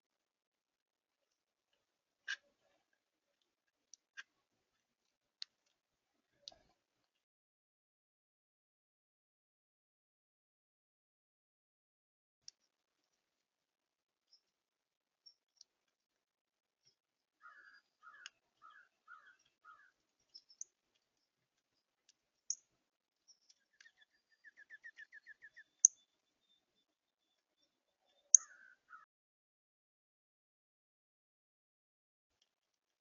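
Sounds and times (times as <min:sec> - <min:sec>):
songbird chirp: 0:14.2 - 0:29.1
bird trill: 0:17.4 - 0:20.7, 0:23.5 - 0:29.1.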